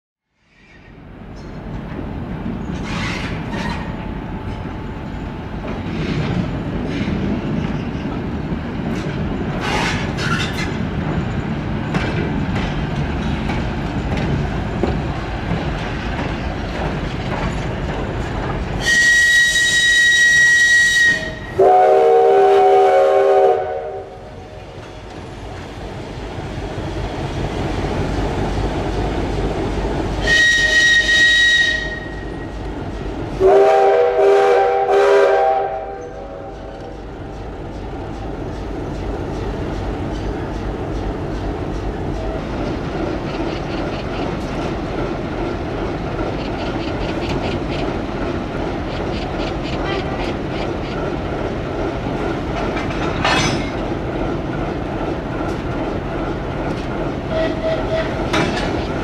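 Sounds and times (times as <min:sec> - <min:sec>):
steam locomotive rumble and hiss: 0:00.5 - 0:59.0
high locomotive whistle: 0:18.8 - 0:24.4, 0:30.2 - 0:32.5, 0:33.4 - 0:36.8, 0:57.3 - 0:58.4
clanks and knocks: 0:52.6 - 0:53.9, 0:58.2 - 0:59.0.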